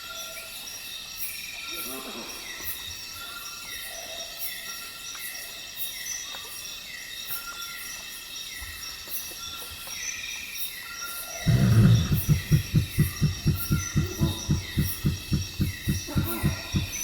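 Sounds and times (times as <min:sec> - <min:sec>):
insect chorus trilling: 0:11.3 - 0:17.0
animal grunt: 0:11.4 - 0:17.0.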